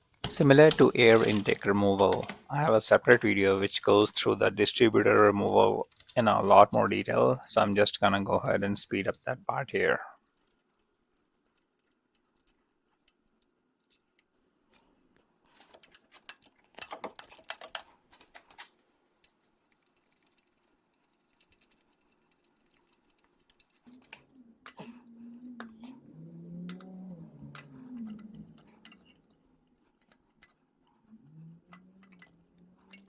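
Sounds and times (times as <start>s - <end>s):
hand tools clicking and rattling: 0.2s - 4.5s, 15.5s - 18.7s.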